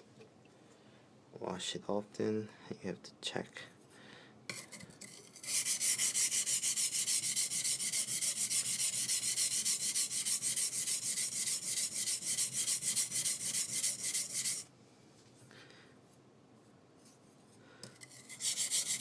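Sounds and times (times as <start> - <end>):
knife scraping on wet whetstone: 4.5 - 14.7, 18.0 - 19.0.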